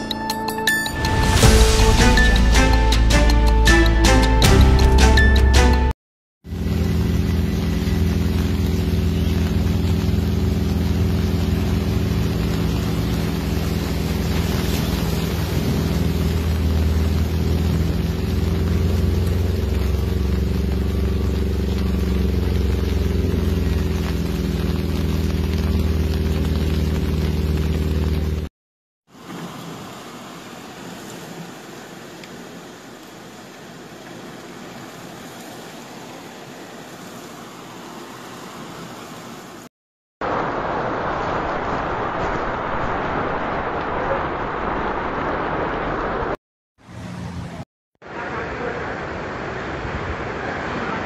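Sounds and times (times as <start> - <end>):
torrential rain: 0.8 - 28.5, 29.1 - 46.4, 48.0 - 51.0
water running through street: 1.0 - 28.5, 29.1 - 47.0, 48.0 - 51.0
low engine hum: 6.5 - 28.5
wind hiss: 6.8 - 23.4, 29.1 - 39.6.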